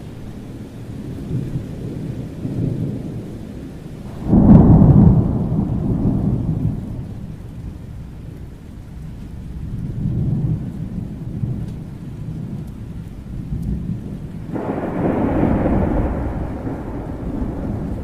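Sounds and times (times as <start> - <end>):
rolling thunder: 0.0 - 8.6, 9.2 - 18.0
light rain: 0.0 - 18.0
thunderclap: 4.0 - 7.7, 10.0 - 18.0.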